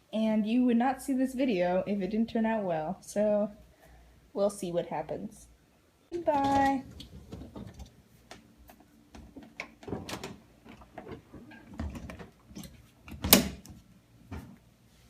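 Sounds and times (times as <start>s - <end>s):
faint steady hum: 0.0s - 15.0s
dishwasher door and racks clicking: 6.2s - 8.0s, 9.2s - 14.6s.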